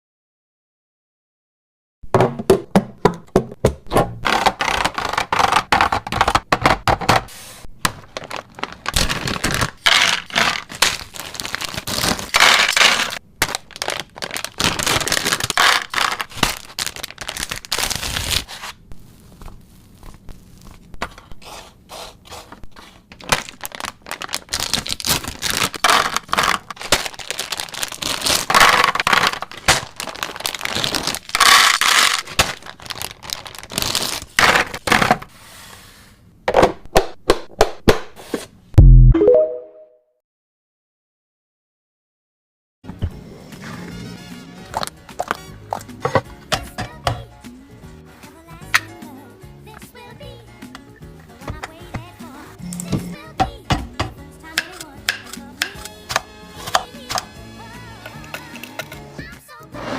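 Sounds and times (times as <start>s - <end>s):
plastic rustling: 7.8s - 20.9s, 22.5s - 34.9s
containers clicking and knocking: 53.7s - 57.3s.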